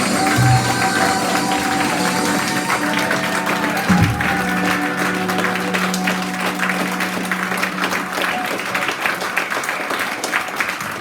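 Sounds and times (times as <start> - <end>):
band final chord ringing: 0.0 - 9.4
audience clapping: 0.0 - 11.0.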